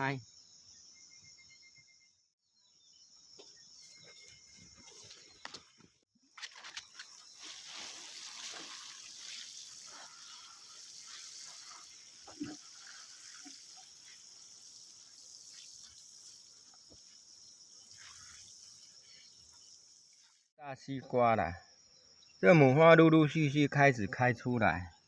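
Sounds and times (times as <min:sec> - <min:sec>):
field insects chirring: 0:00.0 - 0:25.0.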